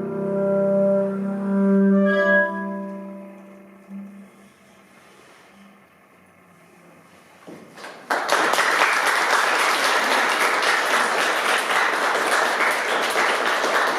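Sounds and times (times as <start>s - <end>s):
audience applauding: 7.7s - 13.9s.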